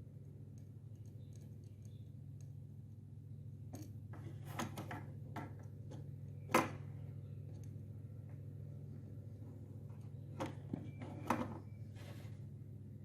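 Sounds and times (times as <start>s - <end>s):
steady low hum: 0.0s - 13.0s
small objects clicking and knocking: 0.4s - 2.6s.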